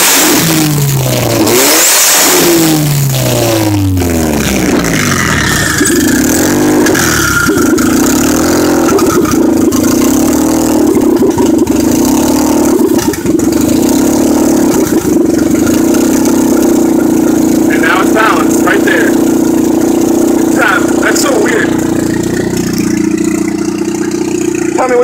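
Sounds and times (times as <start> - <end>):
turbocharged car engine: 0.0 - 25.0.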